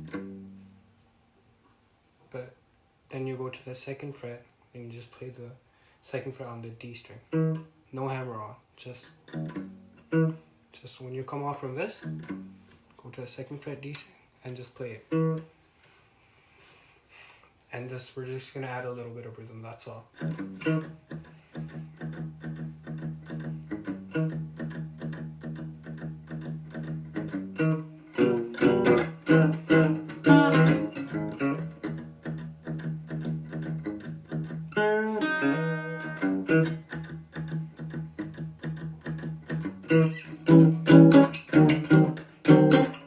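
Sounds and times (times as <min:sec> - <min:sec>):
guitar blues riff: 0:00.0 - 0:00.8, 0:06.9 - 0:10.5, 0:11.1 - 0:12.8, 0:14.8 - 0:15.5, 0:20.0 - 0:43.0.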